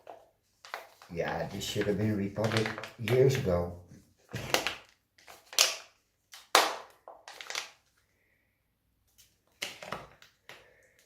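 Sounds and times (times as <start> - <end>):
potting medium crunching and scratching: 0.0 - 5.6.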